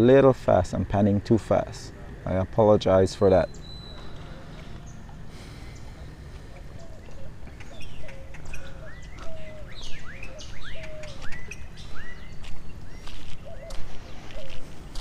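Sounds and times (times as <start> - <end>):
bird whistled notes: 3.5 - 4.6.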